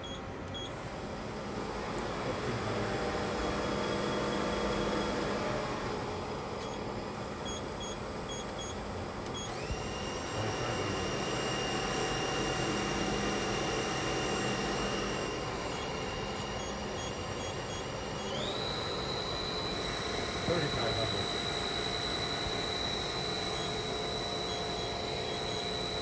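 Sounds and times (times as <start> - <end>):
short beeps: 0.0 - 0.8, 12.4 - 26.0
machine spindle whine: 0.0 - 26.0.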